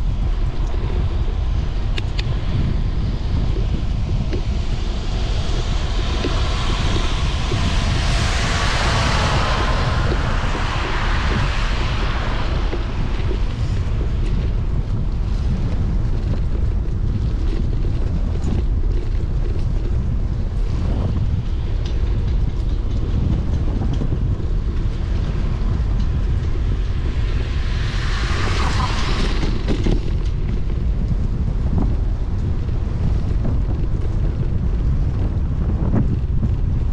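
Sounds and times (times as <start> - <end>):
loud rushing noise: 0.0 - 15.6, 24.2 - 32.2
tyre and road noise: 0.0 - 36.9
wind rumbling on microphone: 0.0 - 36.9.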